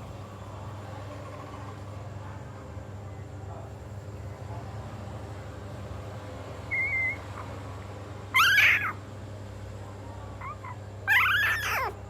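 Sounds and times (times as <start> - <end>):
puppy crying: 8.3 - 9.0, 10.4 - 12.0.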